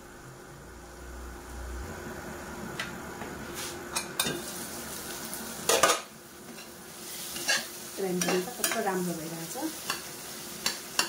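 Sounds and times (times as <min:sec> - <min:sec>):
food sizzling in a pan: 0:03.4 - 0:11.0
spatula scraping a pan: 0:05.7 - 0:09.0.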